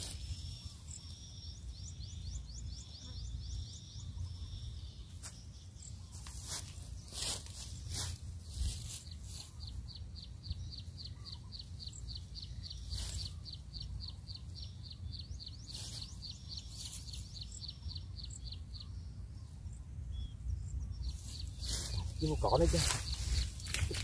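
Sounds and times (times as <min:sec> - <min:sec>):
bird chirping high: 0:20.2 - 0:24.0.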